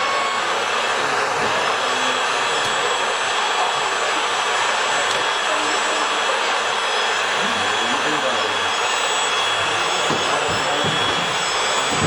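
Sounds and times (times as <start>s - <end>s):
electric motors whirring: 0.0s - 12.0s
thin high-pitched whines: 5.0s - 12.0s.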